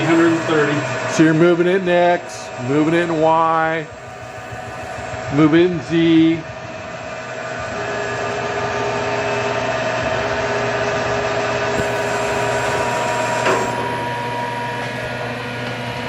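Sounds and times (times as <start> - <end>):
milling machine humming and whining: 0.0 - 16.0
machine clunk: 13.3 - 14.2.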